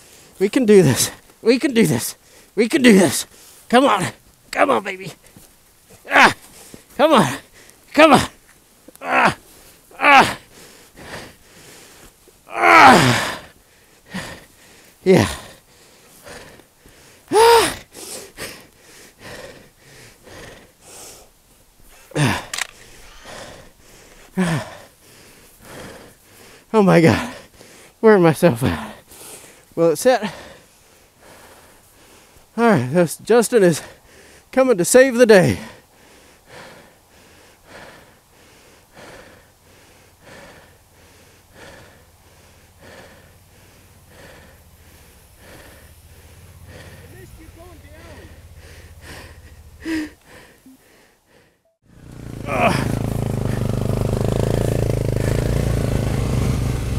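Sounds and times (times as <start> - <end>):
man panting hard: 0.0 - 5.4, 6.0 - 33.0, 33.6 - 34.6, 35.3 - 51.8, 52.4 - 55.6
man breathing heavily: 0.0 - 33.0, 33.6 - 34.6, 35.3 - 55.9
man groaning with strain: 6.0 - 11.3, 12.5 - 13.5, 14.1 - 14.4, 15.0 - 15.6, 17.3 - 17.9, 22.0 - 23.7, 24.3 - 24.9, 46.7 - 50.8, 52.3 - 56.4.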